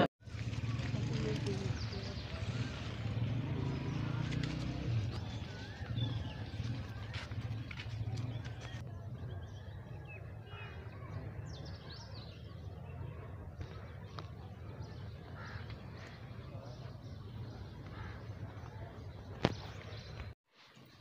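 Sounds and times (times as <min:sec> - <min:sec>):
birds calling: 0:09.4 - 0:20.4.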